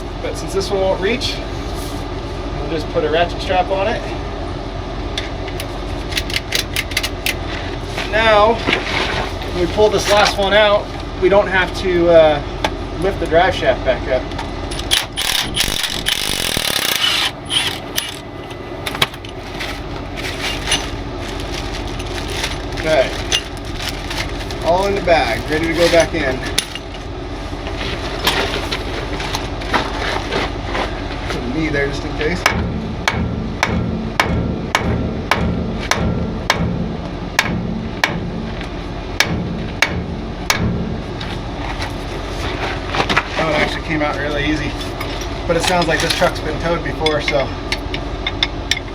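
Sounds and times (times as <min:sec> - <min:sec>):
diesel engine idling: 0:09.2 - 0:48.9
rasping grinding tool: 0:14.7 - 0:18.2
sharp metallic clicks: 0:14.7 - 0:18.3
hammer striking metal shaft: 0:32.4 - 0:41.0.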